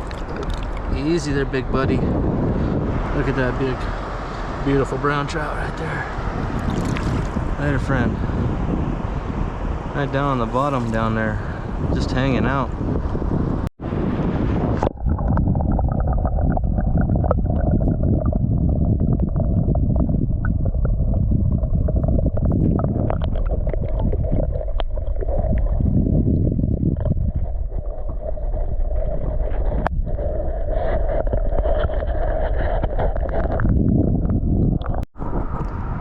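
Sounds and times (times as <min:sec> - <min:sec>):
muffled underwater river current: 0:14.5 - 0:36.0.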